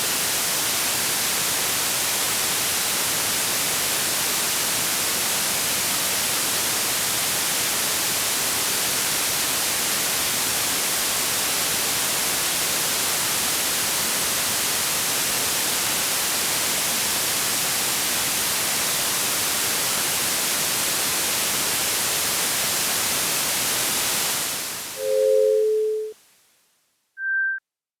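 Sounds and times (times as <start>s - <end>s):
high beep: 25.0s - 26.1s, 27.2s - 27.6s
low two-note alarm tone: 25.0s - 26.1s.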